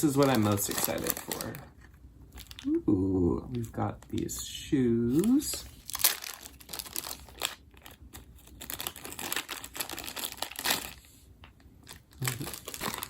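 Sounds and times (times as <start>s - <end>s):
plastic packaging crinkling: 0.0s - 2.8s, 5.1s - 11.1s, 11.8s - 13.0s.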